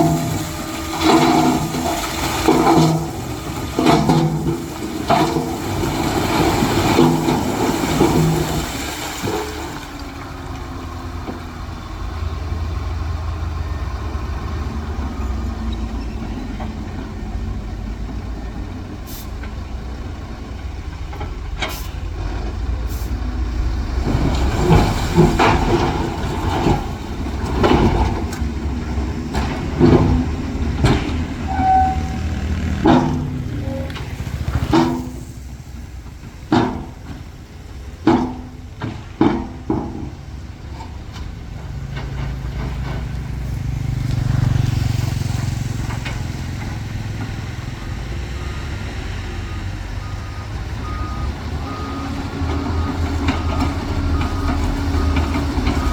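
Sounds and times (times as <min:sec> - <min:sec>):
diesel machinery rumbling: 0:00.0 - 0:55.9
sharp metal clanks and knocks: 0:32.7 - 0:35.4.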